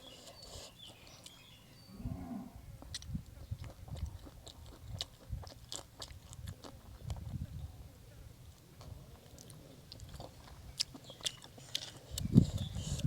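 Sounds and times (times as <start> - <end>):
person chewing noodles: 2.8 - 7.4, 8.9 - 13.0.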